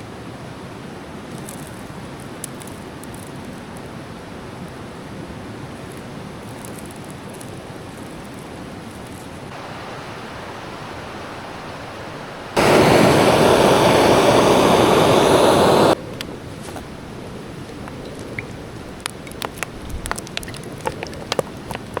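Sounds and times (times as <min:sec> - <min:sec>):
steady rushing noise: 0:09.5 - 0:16.2
loud rushing noise: 0:12.4 - 0:16.0.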